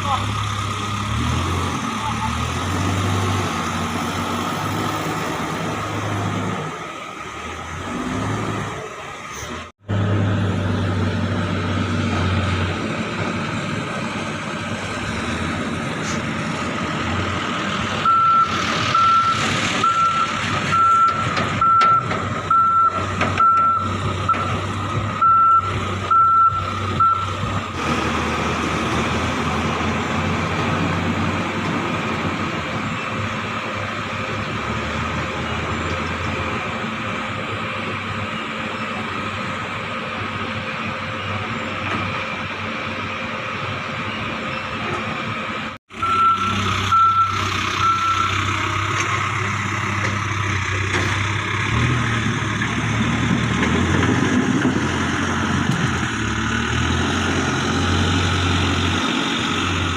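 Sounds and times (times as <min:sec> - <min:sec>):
diesel engines running: 0:00.0 - 0:59.9
reversing alarm beeping: 0:18.0 - 0:27.5, 0:46.0 - 0:48.5.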